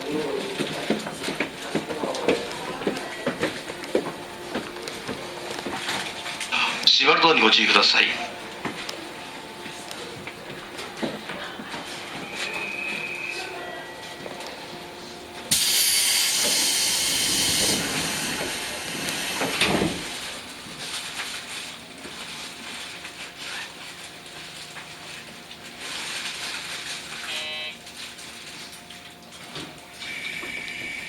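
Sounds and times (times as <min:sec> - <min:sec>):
train moving off: 0:03.3 - 0:20.4
compressed air hiss: 0:15.5 - 0:19.6.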